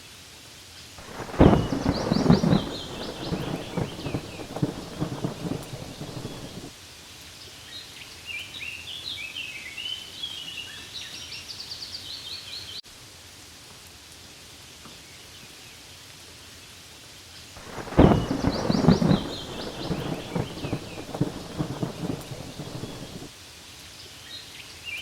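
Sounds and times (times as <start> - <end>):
rain on leaves: 0.5 - 10.2, 12.6 - 25.0
low thunder rumble: 1.0 - 6.7, 17.6 - 23.3
birds chirping: 1.1 - 6.7, 17.6 - 23.3.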